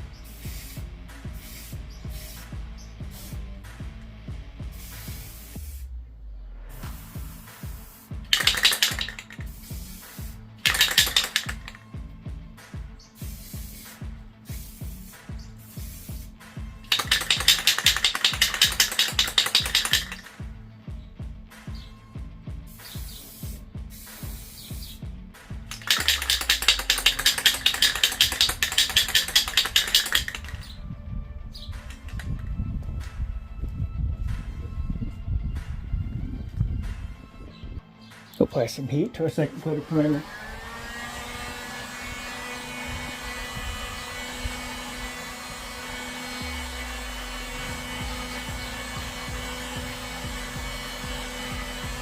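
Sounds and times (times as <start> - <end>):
aerosol can rattling when shaken: 0.0 - 3.5, 4.6 - 5.9, 6.8 - 11.9, 13.2 - 20.5, 22.7 - 25.0, 25.6 - 30.8, 31.7 - 32.5
hot-air blower whining: 39.4 - 52.0.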